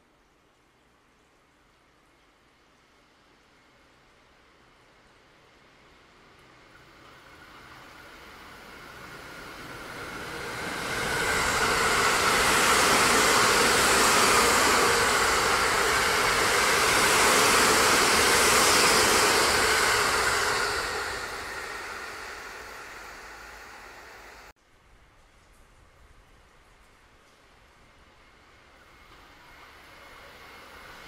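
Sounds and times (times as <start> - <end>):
train wheels on rails: 4.7 - 24.5, 26.9 - 31.0.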